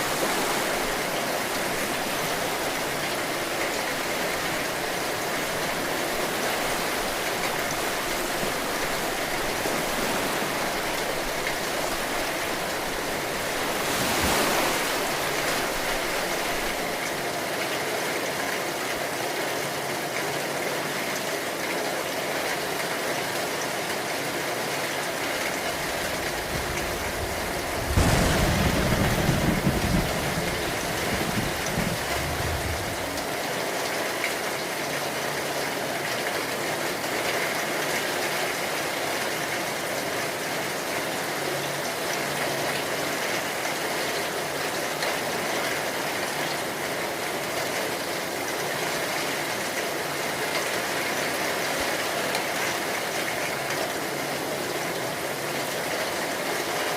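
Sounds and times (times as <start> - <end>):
steady rain: 0.0 - 56.9
thunder clap rumbling: 25.7 - 33.4.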